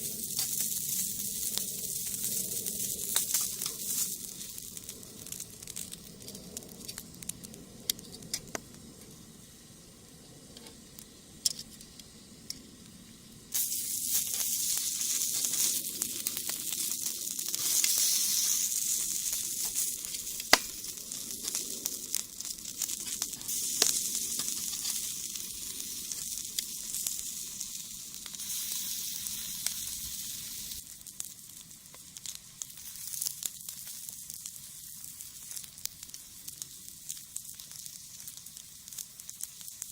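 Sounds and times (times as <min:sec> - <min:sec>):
burning wood crackling: 0:00.0 - 0:39.9
fish sizzling on a grill: 0:00.0 - 0:39.9.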